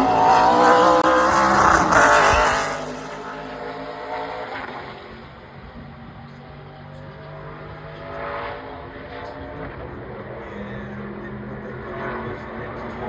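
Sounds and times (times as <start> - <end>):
race truck engine passing: 0.0 - 5.4.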